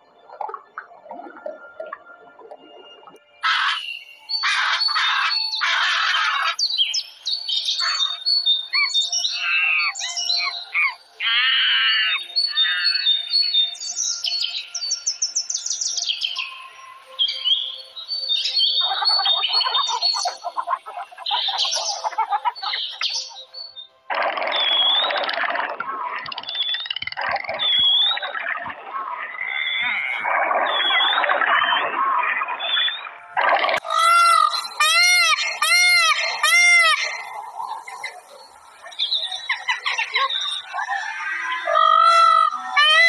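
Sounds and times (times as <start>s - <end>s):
birds chirping songs: 3.1s - 25.5s, 26.1s - 43.0s
birds squawking: 3.4s - 6.7s, 7.8s - 8.2s, 8.8s - 13.1s, 33.8s - 37.4s, 39.3s - 43.0s.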